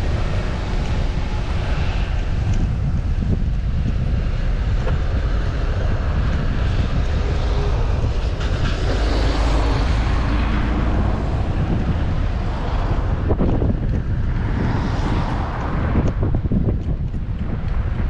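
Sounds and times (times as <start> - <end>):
wind buffeting microphone: 0.0 - 18.0
vehicle passing: 4.3 - 16.7.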